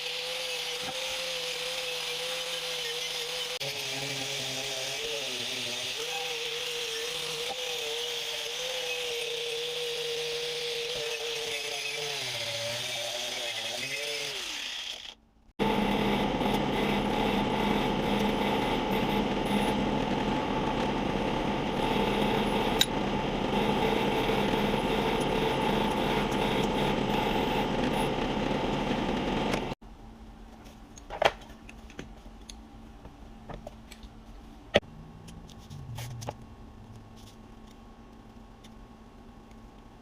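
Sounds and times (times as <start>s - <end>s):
bench grinder running: 0.0s - 29.8s.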